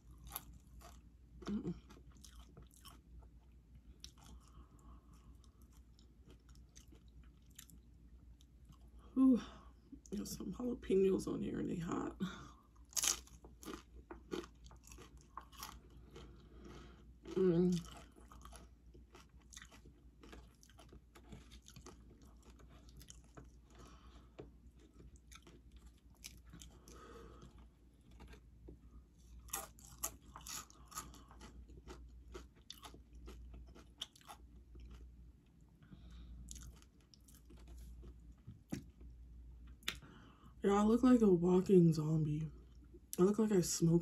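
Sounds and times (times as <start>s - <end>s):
person crunching chips: 12.8s - 28.4s, 29.4s - 35.1s, 36.5s - 38.1s.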